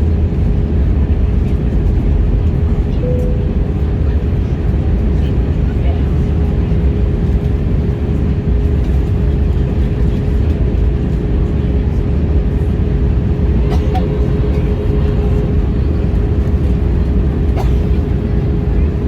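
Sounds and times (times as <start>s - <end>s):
airliner engine and airflow rumble: 0.0s - 19.0s
constant cabin hum: 0.0s - 19.0s.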